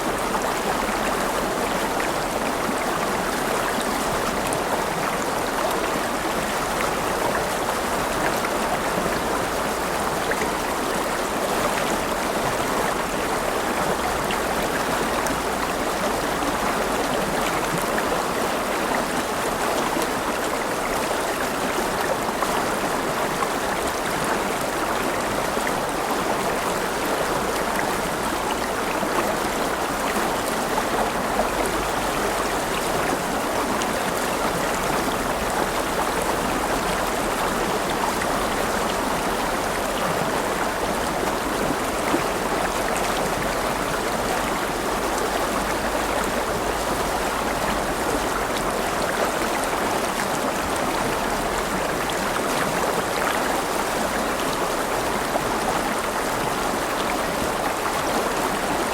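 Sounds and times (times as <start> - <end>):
river water rushing: 0.0 - 58.9.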